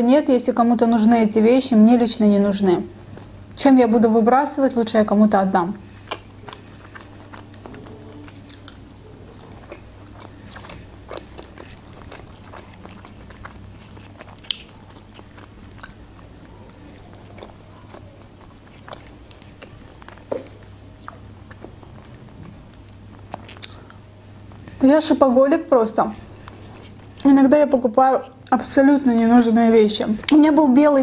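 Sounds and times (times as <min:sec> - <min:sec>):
close chewing: 0:05.8 - 0:24.8, 0:26.2 - 0:27.4
moist mouth sounds: 0:05.9 - 0:24.0.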